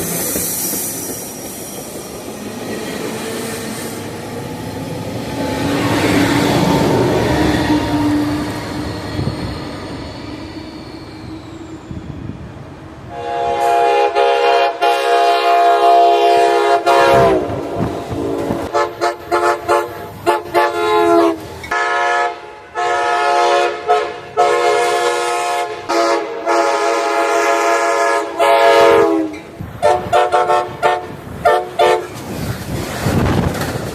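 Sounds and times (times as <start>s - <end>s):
train running: 0.0s - 33.9s
train chime horn blasts: 13.1s - 17.5s, 18.3s - 32.1s.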